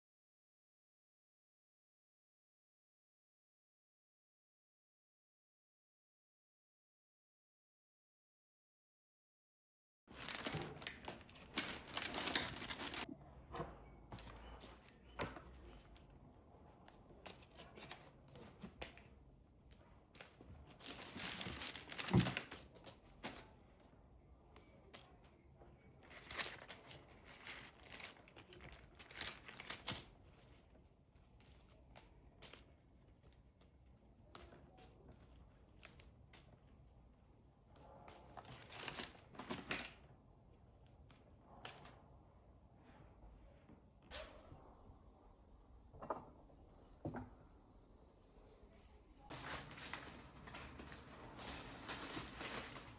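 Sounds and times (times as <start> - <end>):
wrapping crinkling and tearing: 10.1 - 13.1, 14.2 - 23.9, 24.6 - 40.0, 49.3 - 52.9.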